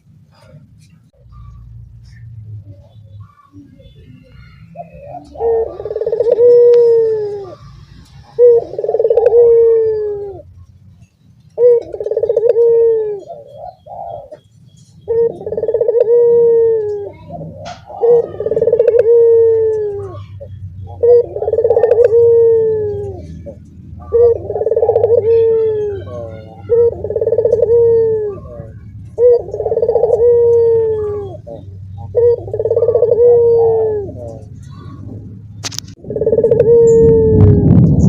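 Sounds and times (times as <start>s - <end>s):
doves cooing: 0.0s - 38.0s.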